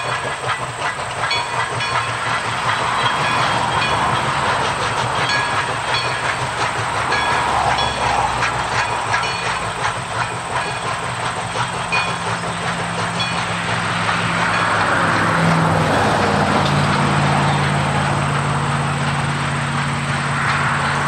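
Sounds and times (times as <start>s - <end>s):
low diesel engine hum: 0.0s - 21.0s
train wheels clicking over rail joints: 0.0s - 21.0s.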